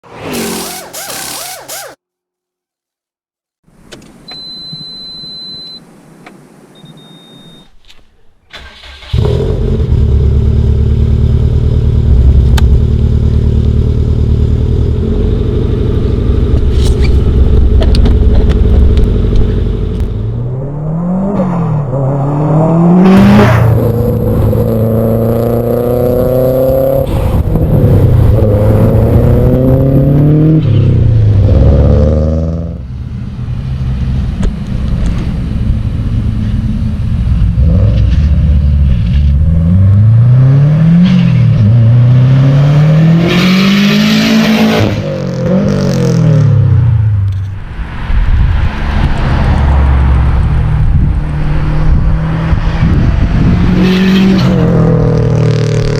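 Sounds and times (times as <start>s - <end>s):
car engine accelerating through gears: 9.0s - 32.8s, 37.5s - 47.2s.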